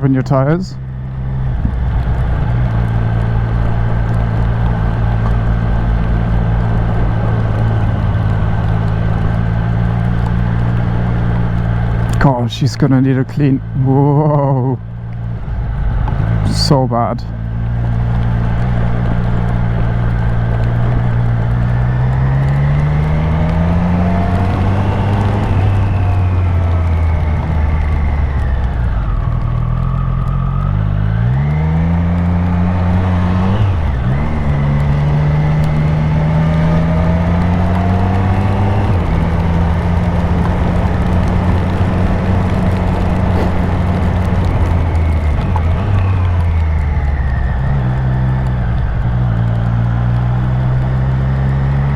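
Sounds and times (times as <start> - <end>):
motorcycle engine revving: 0.0 - 12.4, 13.4 - 51.9
steady rushing noise: 0.0 - 29.7, 32.8 - 50.9.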